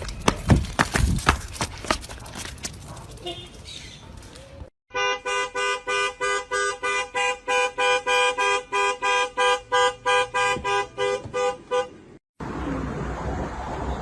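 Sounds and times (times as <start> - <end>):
car horn two-tone beeps: 4.9 - 12.0.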